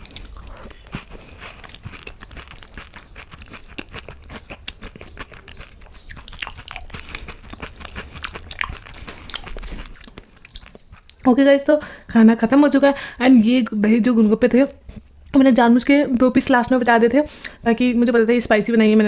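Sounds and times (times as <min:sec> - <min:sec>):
crisp food crunched and chewed: 0:00.0 - 0:11.2.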